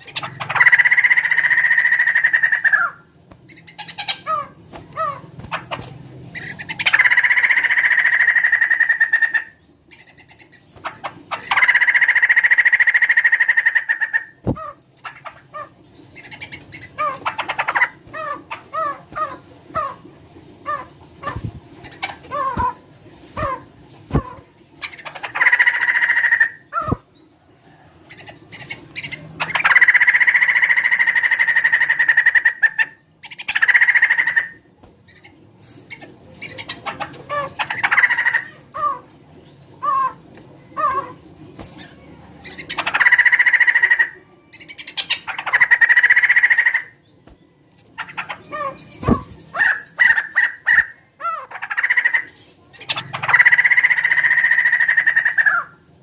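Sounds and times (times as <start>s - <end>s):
bird drawn-out calls: 0.0s - 20.0s, 28.2s - 39.1s, 42.5s - 47.0s, 48.0s - 55.8s.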